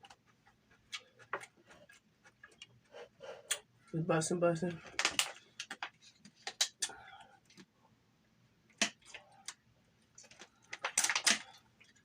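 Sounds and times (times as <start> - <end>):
person chewing: 0.0 - 3.8.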